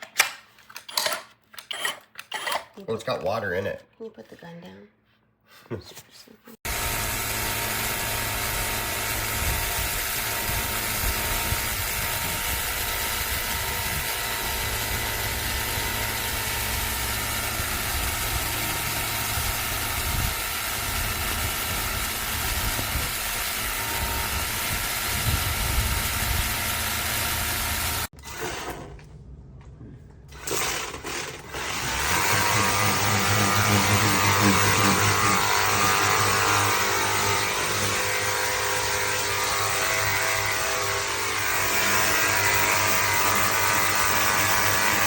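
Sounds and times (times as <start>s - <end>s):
pressure washer motor whine: 6.7s - 28.1s, 30.4s - 45.0s.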